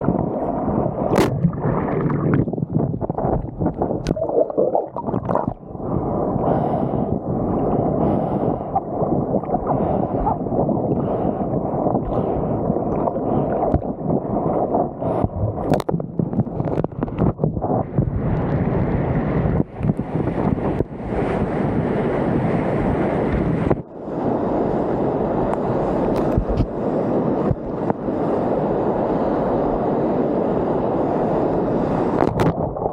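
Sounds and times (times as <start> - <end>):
water rushing and splashing: 0.0 - 7.0, 7.6 - 18.9
wind rumbling on microphone: 0.0 - 32.9.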